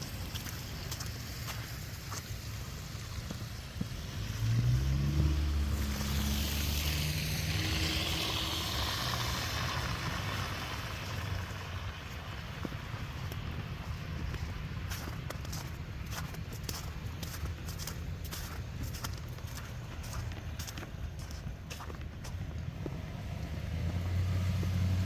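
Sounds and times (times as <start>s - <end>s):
vehicle driving past: 3.9s - 12.0s, 22.6s - 25.0s.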